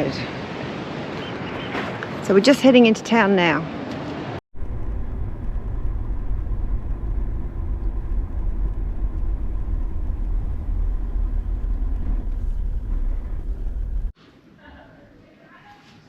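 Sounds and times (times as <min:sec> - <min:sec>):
road noise: 0:03.7 - 0:14.2
vehicle engine rumble: 0:04.5 - 0:14.2.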